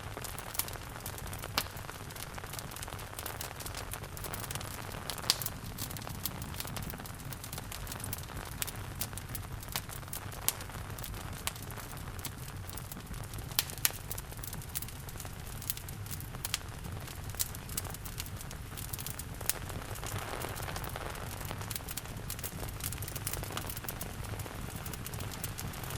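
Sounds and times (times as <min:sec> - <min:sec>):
soft hiss of rain: 0:00.0 - 0:25.9
wood fire crackling: 0:00.0 - 0:25.9.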